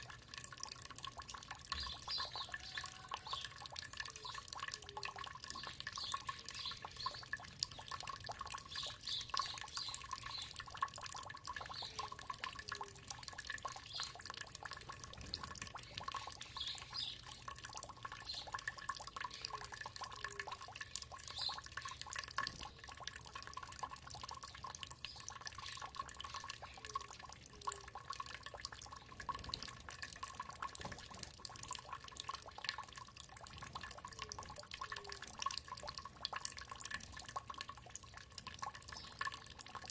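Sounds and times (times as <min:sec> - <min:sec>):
water trickling and dripping: 0:00.0 - 0:39.9
bird chirps: 0:01.7 - 0:03.5, 0:04.2 - 0:07.4.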